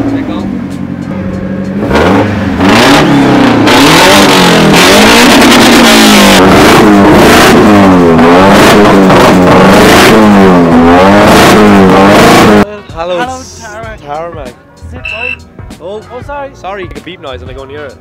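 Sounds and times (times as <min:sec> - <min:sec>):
car engine revving: 0:00.0 - 0:12.7.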